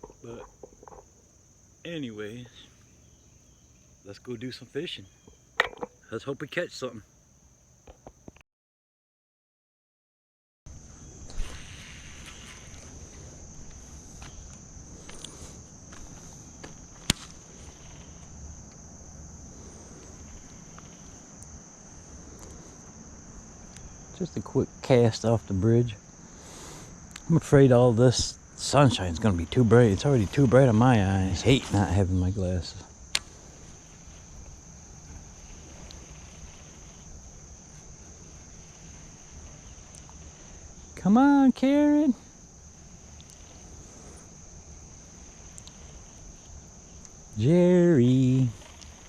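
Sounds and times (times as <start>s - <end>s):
crickets chirping: 0.0s - 8.4s, 10.7s - 49.0s
insects droning: 0.0s - 8.4s, 10.7s - 49.0s
faint ticks: 19.9s - 21.6s, 33.1s - 37.1s, 37.7s - 40.6s, 42.9s - 44.3s, 45.2s - 47.2s, 48.4s - 49.0s.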